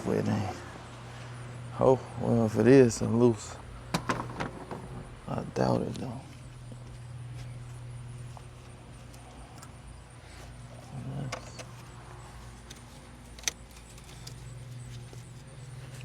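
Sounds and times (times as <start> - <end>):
rattle of handled parts: 3.9 - 5.1, 11.2 - 16.0.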